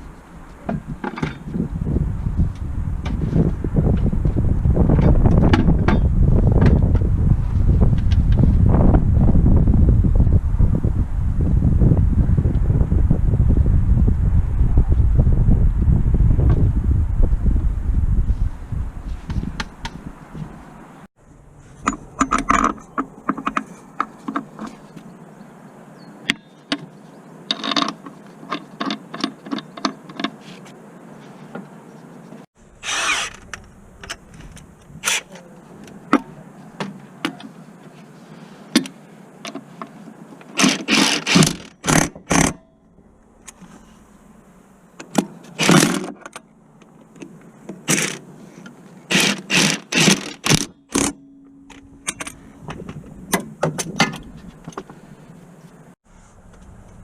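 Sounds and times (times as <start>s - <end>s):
metallic clicks and knocks: 21.8s - 24.8s
power tool bursts: 32.8s - 33.4s.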